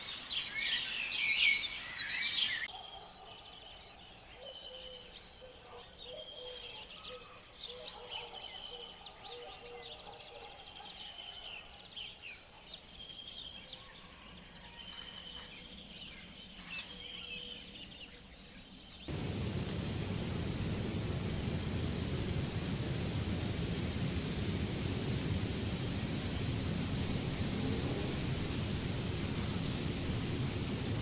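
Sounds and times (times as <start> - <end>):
high insect trill: 17.6 - 31.0
loud rushing noise: 19.1 - 31.0.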